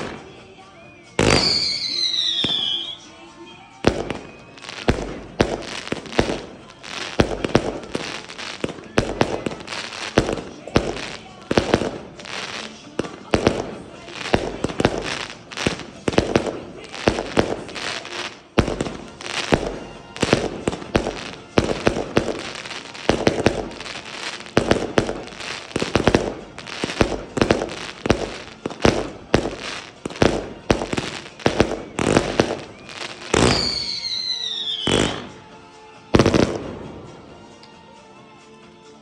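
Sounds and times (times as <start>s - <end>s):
fireworks bangs: 0.0s - 37.4s
faint music: 0.0s - 39.0s
firework whistle falling: 1.2s - 3.1s, 30.9s - 35.5s.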